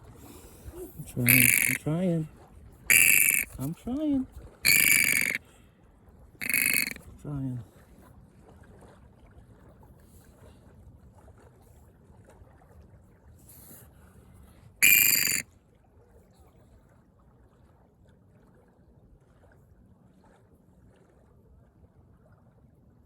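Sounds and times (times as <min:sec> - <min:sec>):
shrill whistle-like bird call: 0:01.3 - 0:01.8, 0:02.9 - 0:03.5, 0:04.7 - 0:05.4, 0:06.4 - 0:07.0, 0:14.8 - 0:15.4.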